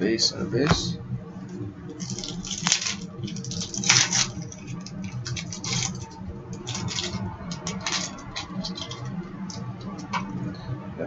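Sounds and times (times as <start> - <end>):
low steady hum: 0.0 - 11.0
card packs crinkling and clicking: 2.0 - 10.4.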